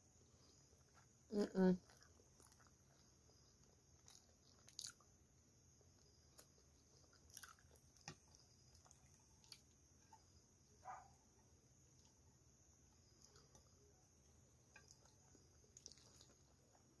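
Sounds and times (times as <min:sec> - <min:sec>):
faint chewing: 0:00.2 - 0:05.2, 0:05.8 - 0:11.1, 0:12.9 - 0:17.0.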